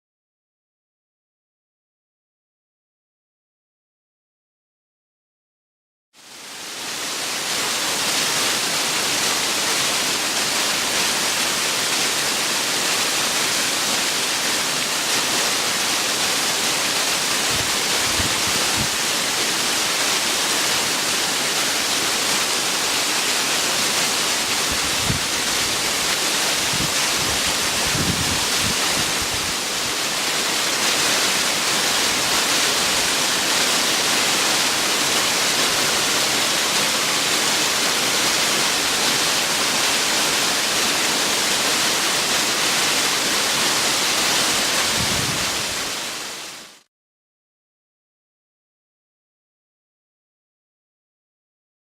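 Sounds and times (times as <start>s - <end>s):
waterfall rushing: 6.2s - 46.9s.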